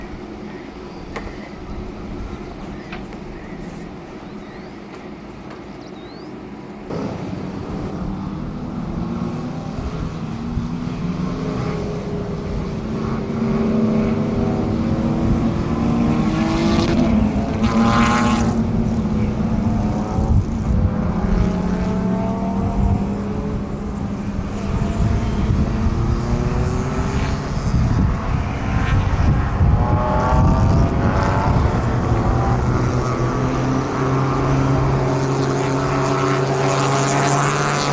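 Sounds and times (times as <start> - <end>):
racing car engines at full throttle: 6.2 - 37.9
racing car passing close: 6.9 - 37.9.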